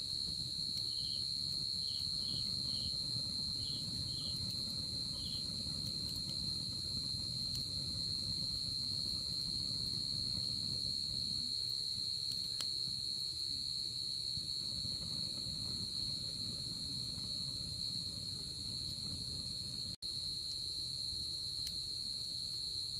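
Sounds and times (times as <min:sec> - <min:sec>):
campfire rumble: 0:00.0 - 0:20.3
crickets trilling: 0:00.0 - 0:22.9
faint campfire pop: 0:00.4 - 0:13.4.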